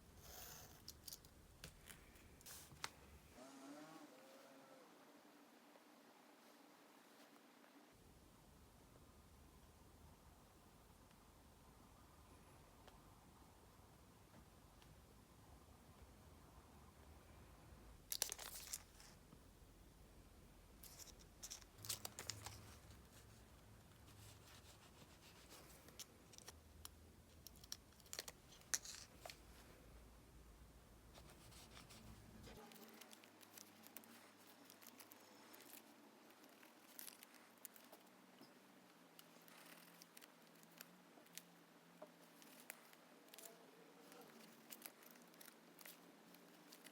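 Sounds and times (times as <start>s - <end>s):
paper scratches and crinkles: 20.8s - 26.6s, 31.2s - 38.0s, 42.2s - 46.9s.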